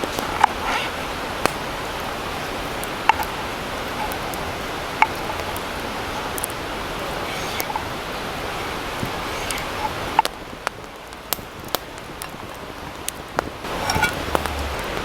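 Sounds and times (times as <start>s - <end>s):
campfire hissing: 0.0s - 15.0s
fire pops and clicks: 0.0s - 15.0s.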